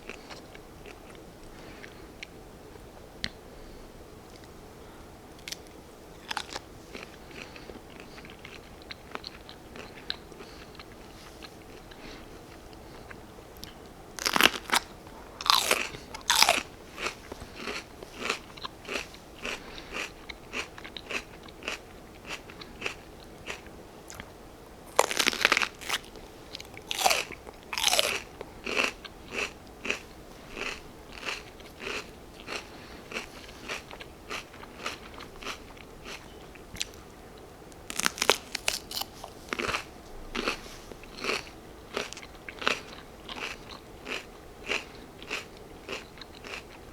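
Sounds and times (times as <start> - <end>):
chewing crunches: 5.4 - 37.0, 37.8 - 46.9
crisp bites of pepper: 24.9 - 28.2, 37.9 - 40.6.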